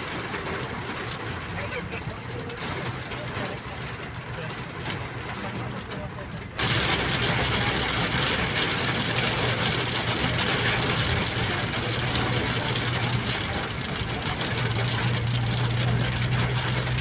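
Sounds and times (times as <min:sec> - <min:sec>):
vehicle engine humming: 0:00.0 - 0:17.0
heavy rain hissing: 0:06.6 - 0:17.0.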